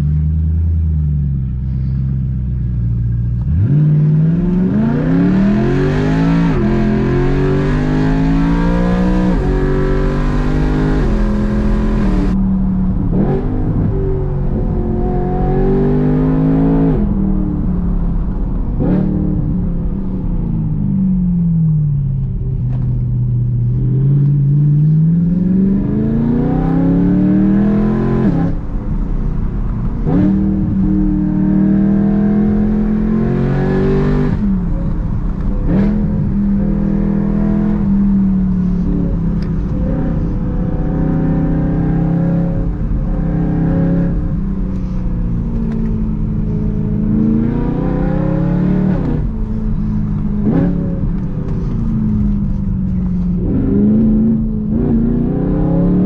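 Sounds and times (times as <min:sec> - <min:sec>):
car engine revving with gear changes: 0:00.0 - 0:56.0.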